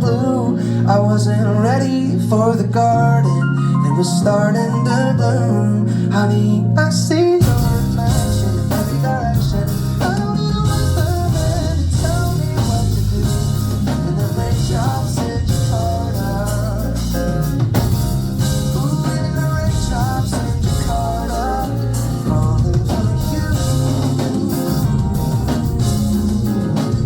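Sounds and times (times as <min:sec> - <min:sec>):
bass: 0:00.0 - 0:27.0
guitar: 0:00.0 - 0:27.0
sliding lead melody: 0:00.0 - 0:27.0
drum kit: 0:07.4 - 0:27.0.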